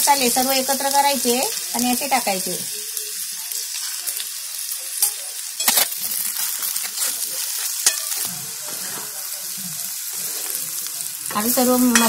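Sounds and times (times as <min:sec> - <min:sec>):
okra sizzling in oil: 0:00.0 - 0:12.0.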